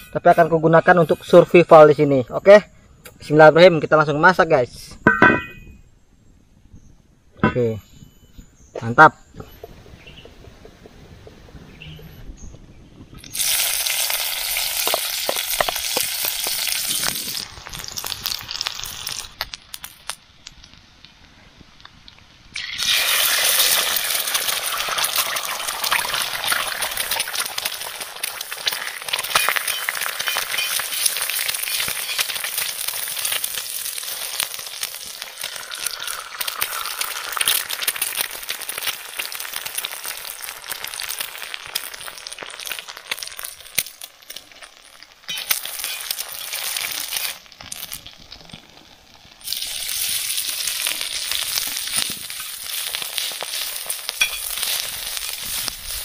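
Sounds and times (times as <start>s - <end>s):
egg sizzling in a pan: 13.2s - 21.2s, 22.0s - 56.0s.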